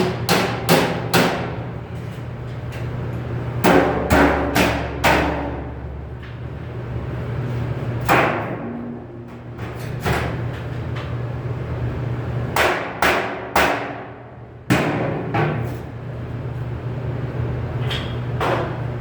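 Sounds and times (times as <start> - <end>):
hammer striking sheet metal: 0.0 - 1.6, 3.6 - 5.8, 8.0 - 9.4, 12.6 - 15.6
steady low hum: 0.0 - 19.0.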